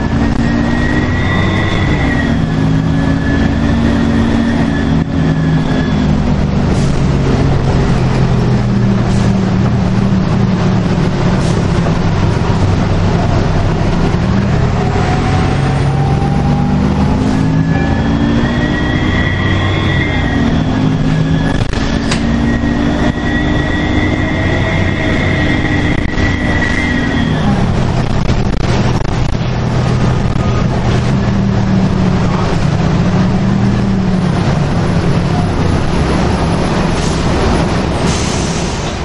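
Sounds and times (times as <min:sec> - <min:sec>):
bus diesel engine running: 0:00.0 - 0:39.0
road drone: 0:00.0 - 0:39.0
turbo whistle: 0:17.7 - 0:27.6.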